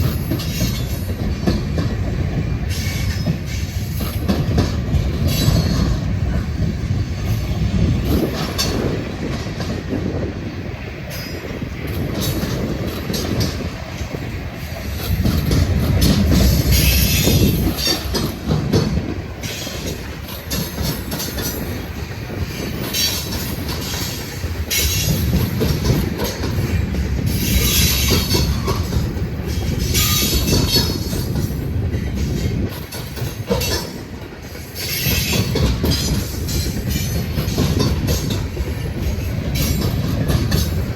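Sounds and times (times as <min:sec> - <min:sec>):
wheels clicking over rail joints: 0:00.0 - 0:10.3, 0:11.0 - 0:40.9
freight train rumbling: 0:00.0 - 0:40.9.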